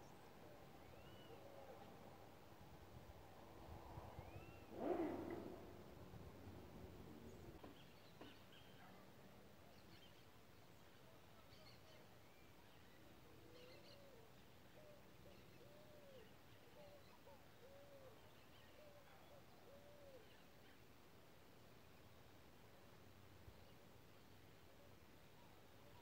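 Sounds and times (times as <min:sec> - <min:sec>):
faint low bird calls: 0:00.0 - 0:02.4, 0:03.6 - 0:21.0.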